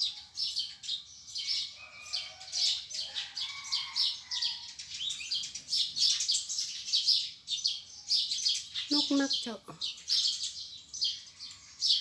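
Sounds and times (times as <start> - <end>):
small birds chirping: 4.5 - 12.0.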